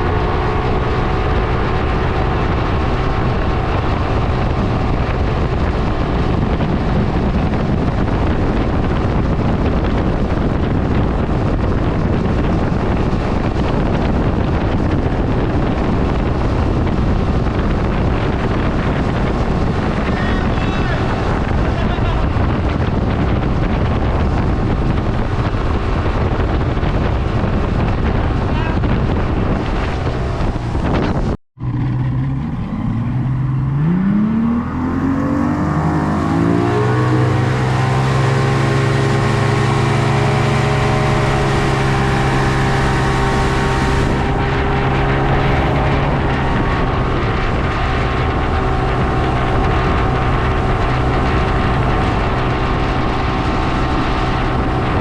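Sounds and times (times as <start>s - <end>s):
boat engine speeding up: 0.0s - 55.0s
wind and water rushing: 0.0s - 55.0s.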